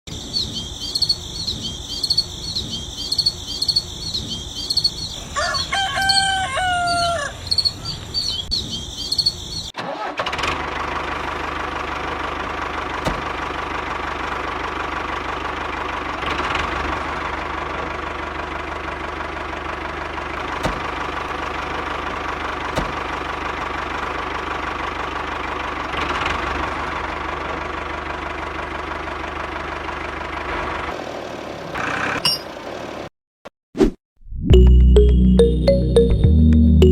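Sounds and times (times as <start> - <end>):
diesel engine running: 0.2 - 33.1
rooster crowing: 5.3 - 7.9
rhythmic high chirping: 34.5 - 36.9.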